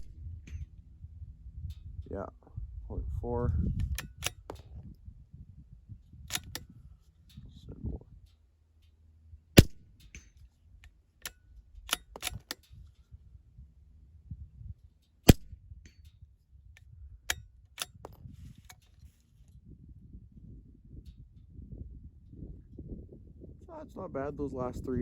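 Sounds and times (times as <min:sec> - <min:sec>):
rifle bolt clicks and knocks: 0:00.0 - 0:00.7, 0:03.8 - 0:04.9, 0:06.3 - 0:06.7, 0:09.6 - 0:13.1, 0:15.0 - 0:16.2, 0:16.8 - 0:19.6
rifle shots: 0:09.6 - 0:09.9, 0:15.3 - 0:15.5.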